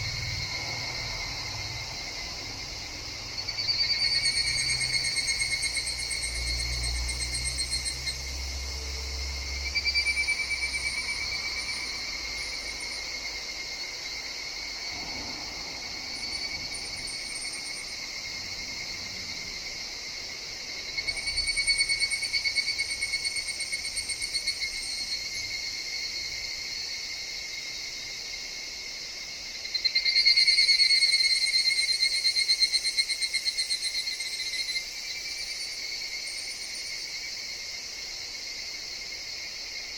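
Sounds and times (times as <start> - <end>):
cicadas trilling: 0.0 - 39.9.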